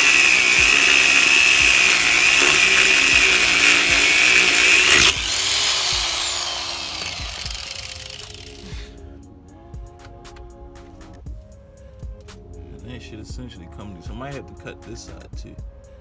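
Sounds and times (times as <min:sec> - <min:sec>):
wheel whine spinning down: 0:00.0 - 0:08.7
cutoff wheel grinding metal pipe: 0:00.0 - 0:08.9.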